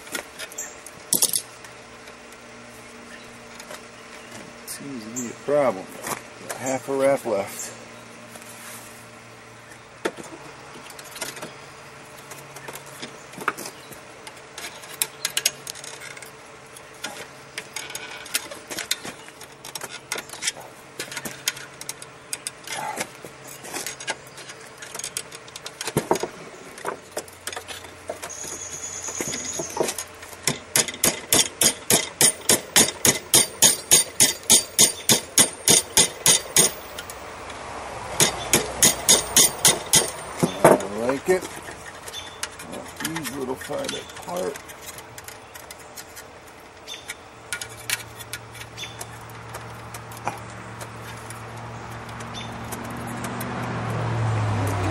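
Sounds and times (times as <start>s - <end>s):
steel clinking: 29.4s - 37.2s, 38.2s - 46.1s
hammer blows on anvil: 31.0s - 37.1s, 38.2s - 40.8s.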